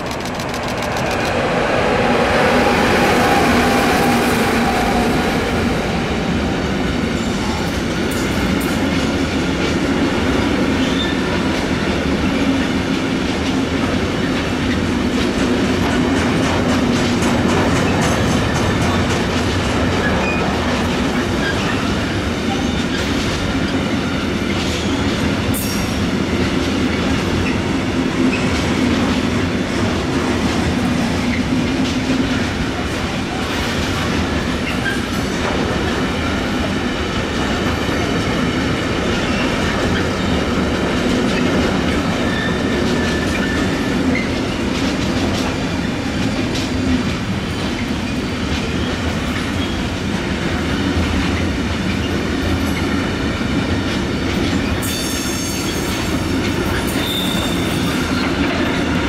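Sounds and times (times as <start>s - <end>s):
train wheels running on rails: 0.0s - 59.0s
high wheel squeal: 56.9s - 58.3s.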